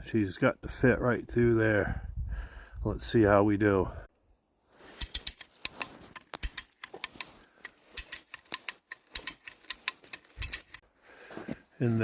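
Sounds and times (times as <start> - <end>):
hand winch ratchet clicking: 5.0 - 10.8.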